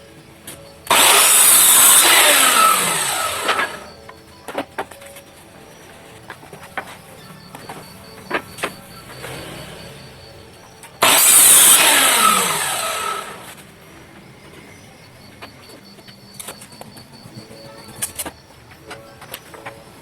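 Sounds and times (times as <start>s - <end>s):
electric power tool winding down: 0.8s - 4.0s, 8.6s - 10.3s, 11.0s - 13.6s.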